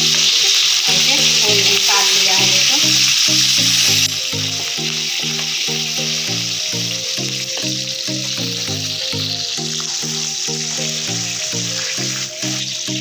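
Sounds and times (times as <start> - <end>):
onions sizzling in hot oil: 0.0 - 13.0
background music with beat: 2.7 - 13.0.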